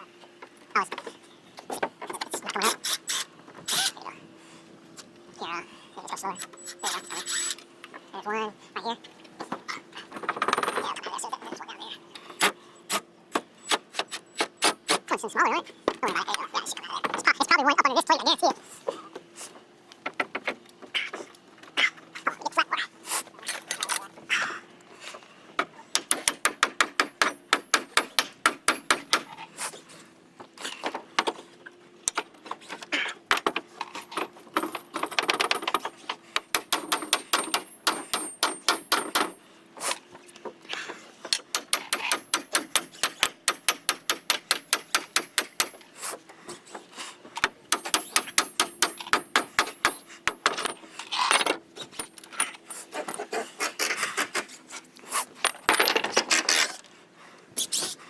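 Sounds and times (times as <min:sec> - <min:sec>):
faint motor whine: 0:00.0 - 0:26.0.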